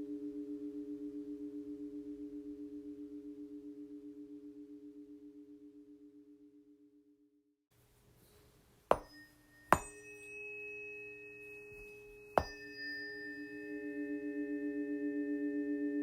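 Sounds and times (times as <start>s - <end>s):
tuning fork ringing tones: 0.0s - 7.2s, 8.9s - 16.0s
tuning forks struck: 8.9s - 16.0s.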